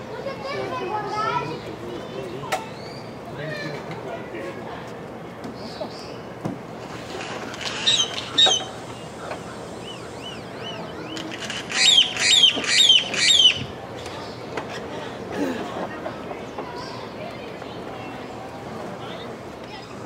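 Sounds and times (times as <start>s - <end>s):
faint bird chirps: 7.7s - 14.4s
high bird calls falling in pitch: 9.8s - 13.7s.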